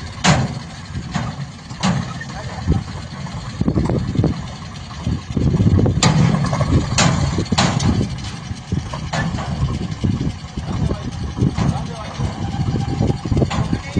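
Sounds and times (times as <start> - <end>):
diesel engine running: 0.0 - 13.9
sharp knocks: 6.0 - 8.1.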